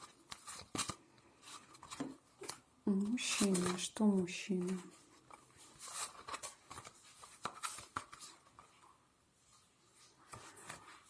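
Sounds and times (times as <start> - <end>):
cards tapping and rustling: 0.0 - 4.0, 4.6 - 8.8.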